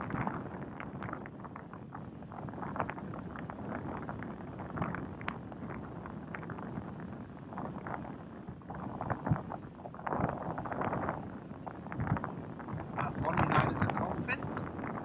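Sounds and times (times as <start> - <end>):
wind buffeting microphone: 0.0 - 15.0
low harbour rumble: 8.2 - 15.0.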